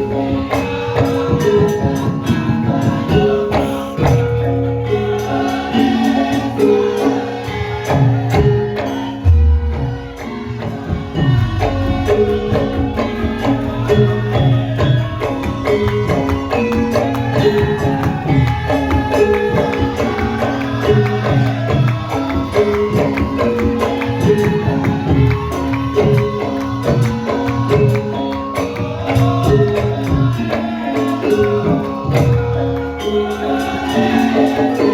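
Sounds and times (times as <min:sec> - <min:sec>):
gamelan metallic melody: 0:00.0 - 0:34.9
hand drum strokes: 0:08.2 - 0:32.6
person singing: 0:10.2 - 0:34.9.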